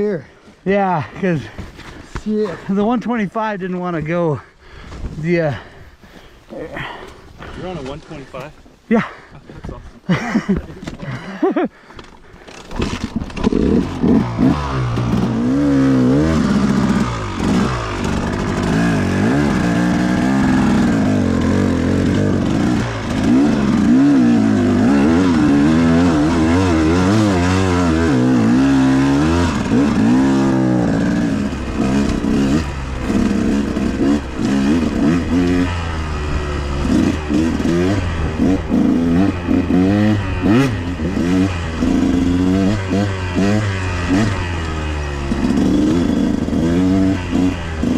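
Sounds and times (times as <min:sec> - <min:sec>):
dirt bike engine revving: 0:12.5 - 0:47.9.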